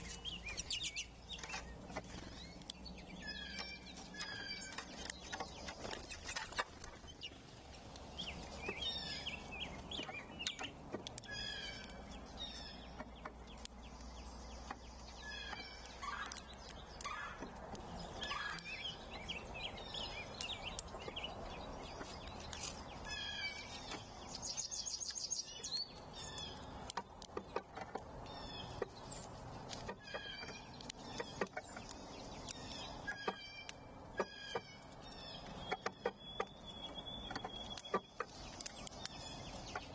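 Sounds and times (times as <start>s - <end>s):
rapid high bird trill: 0.0s - 2.6s, 7.4s - 11.8s, 17.8s - 21.7s
songbirds chirping and singing: 0.0s - 3.9s, 7.4s - 13.4s, 17.8s - 26.7s.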